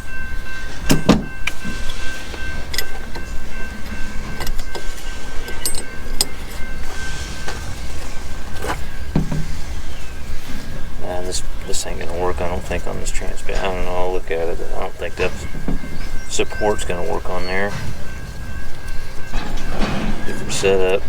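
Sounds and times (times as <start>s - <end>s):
thin high tone: 0.0s - 21.0s
metal tools clinking: 0.9s - 7.8s, 10.5s - 21.0s.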